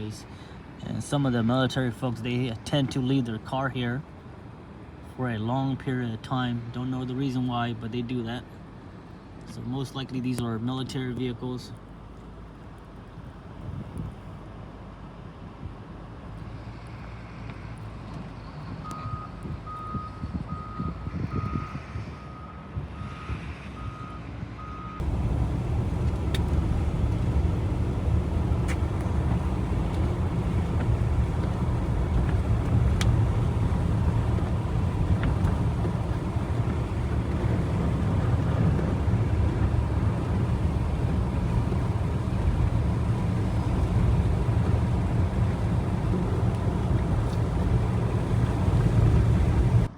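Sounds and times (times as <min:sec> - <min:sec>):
vehicle reversing alarm beeping: 0:18.8 - 0:38.6
low engine rumble: 0:25.0 - 0:49.9.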